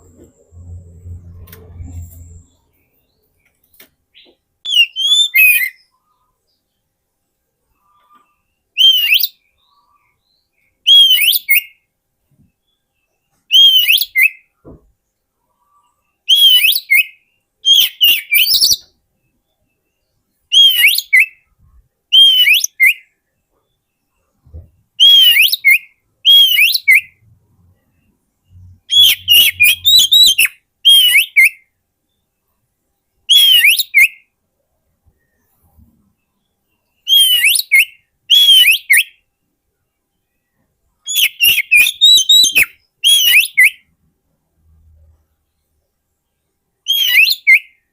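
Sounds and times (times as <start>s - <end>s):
bird whistled song: 4.2s - 6.6s, 7.8s - 11.9s, 13.5s - 14.5s, 15.7s - 21.5s, 22.1s - 27.2s, 27.8s - 31.7s, 33.3s - 34.3s, 36.4s - 39.3s, 41.1s - 43.9s, 46.8s - 47.9s.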